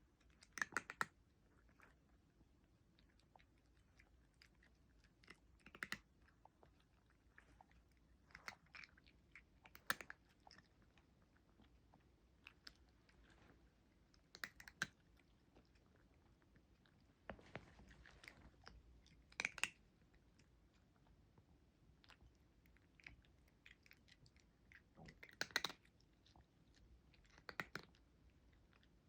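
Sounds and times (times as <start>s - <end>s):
cat chewing crunchy food: 0.0s - 29.0s.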